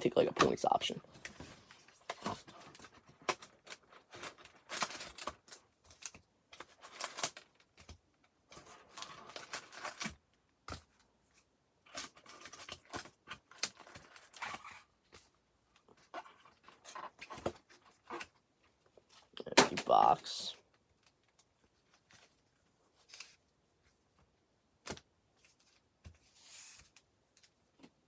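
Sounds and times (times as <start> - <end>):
packaging tearing and rustling: 1.9 - 7.7.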